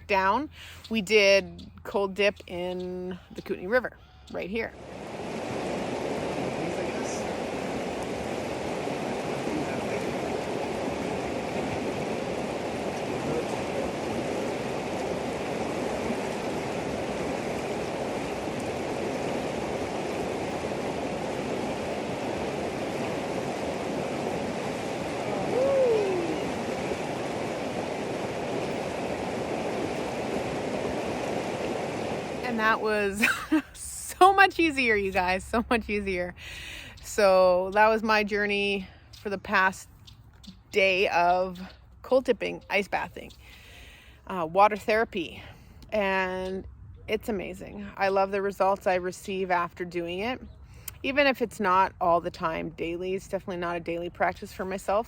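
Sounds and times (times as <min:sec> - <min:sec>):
river water rushing: 0:04.7 - 0:34.3
voice crying out: 0:25.2 - 0:26.6.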